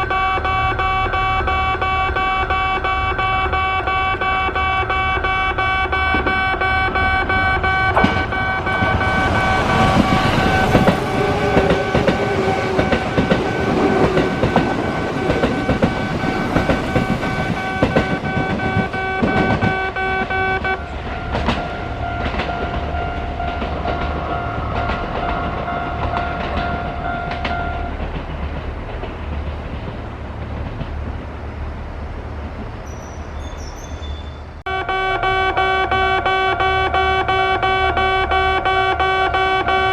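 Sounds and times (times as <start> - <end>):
train wheels clacking over rail joints: 4.1 - 33.3.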